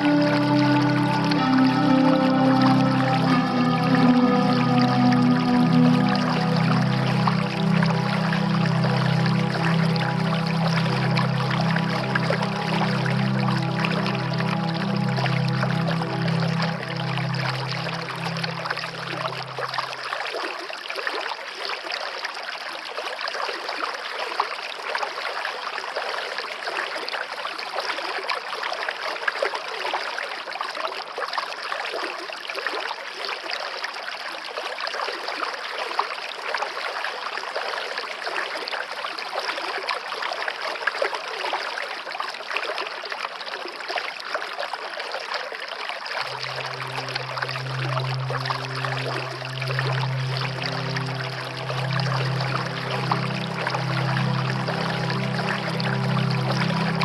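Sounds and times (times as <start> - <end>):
low musical drone: 0.0 - 20.2, 46.2 - 57.0
stream water babbling: 0.0 - 57.0.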